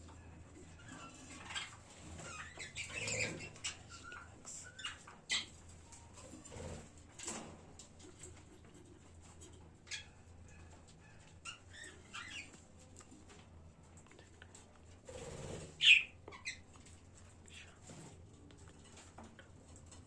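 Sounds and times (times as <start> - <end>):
budgerigars chirping: 1.0 - 5.5, 15.8 - 16.6.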